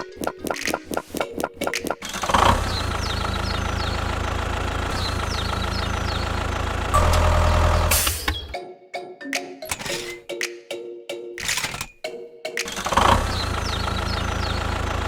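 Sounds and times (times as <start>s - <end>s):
engine idling: 2.2s - 8.5s, 12.8s - 15.0s.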